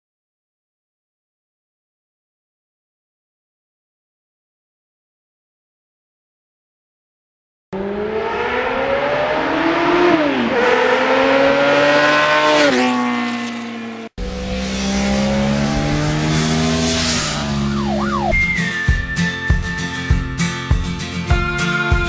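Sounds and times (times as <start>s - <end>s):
motorcycle engine accelerating: 7.8s - 22.0s.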